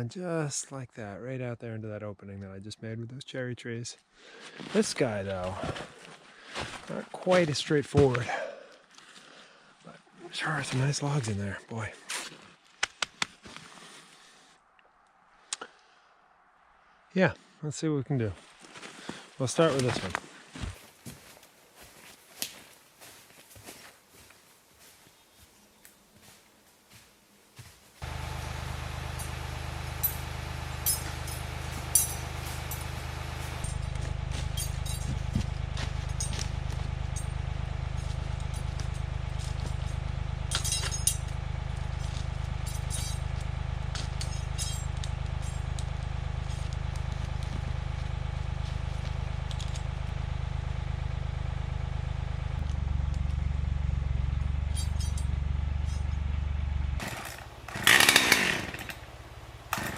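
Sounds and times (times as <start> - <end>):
light metallic clinks: 28.0 - 41.4, 42.0 - 45.8, 54.4 - 56.2, 57.0 - 59.9
engine idling: 28.0 - 59.9.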